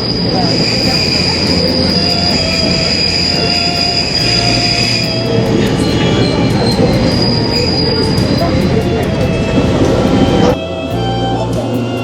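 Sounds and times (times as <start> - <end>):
high wheel squeal: 0.0 - 12.0
train rumbling: 0.0 - 12.0.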